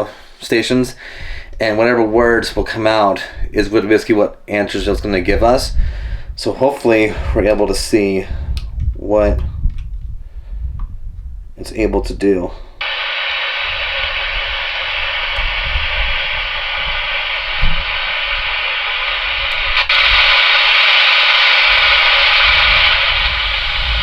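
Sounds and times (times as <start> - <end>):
radio static hissing: 12.8 - 24.0.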